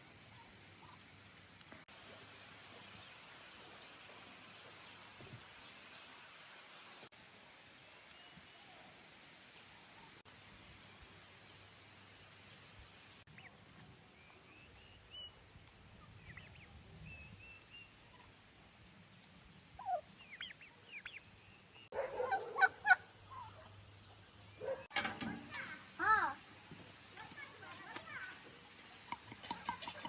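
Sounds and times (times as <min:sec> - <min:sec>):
fowl chirping: 0:19.8 - 0:24.9
fowl honking calls: 0:21.9 - 0:23.7.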